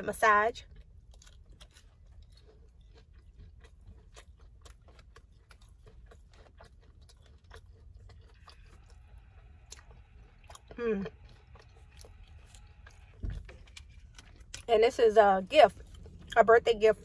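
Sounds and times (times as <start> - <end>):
soft chewing crunches: 0.5 - 17.0
chewing with wet mouth clicks: 0.6 - 17.0.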